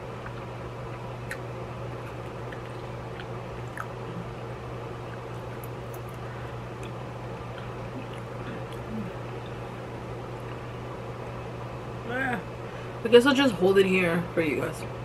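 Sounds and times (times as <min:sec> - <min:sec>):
steady low hum: 0:00.0 - 0:15.0
person chewing food: 0:00.2 - 0:09.7
wet mouth clicks: 0:01.2 - 0:01.5.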